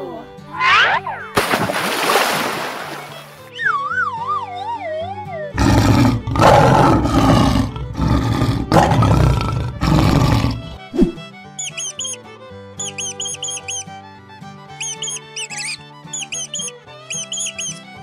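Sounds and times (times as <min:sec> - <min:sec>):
falling cartoon whistle: 0:00.6 - 0:01.3, 0:03.5 - 0:05.5, 0:11.6 - 0:12.2, 0:12.8 - 0:13.9, 0:14.8 - 0:17.8
lion roaring: 0:05.5 - 0:11.2
quick high squeaks: 0:11.6 - 0:12.2, 0:12.8 - 0:13.9, 0:14.7 - 0:18.0.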